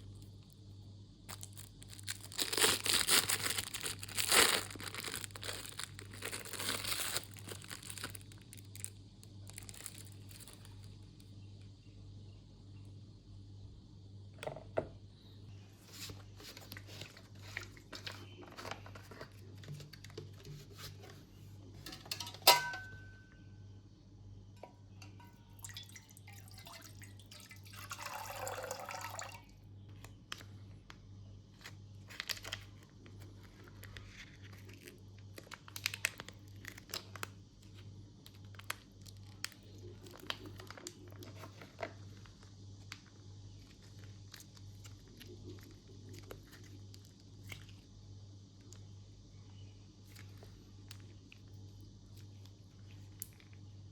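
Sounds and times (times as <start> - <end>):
plastic wrappers crinkling: 1.3 - 11.2, 15.9 - 21.1, 30.0 - 47.8.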